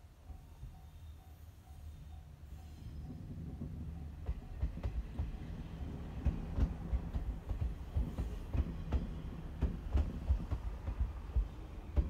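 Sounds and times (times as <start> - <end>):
train low rumble: 0.0 - 12.0
wheels knocking on track: 3.1 - 12.0.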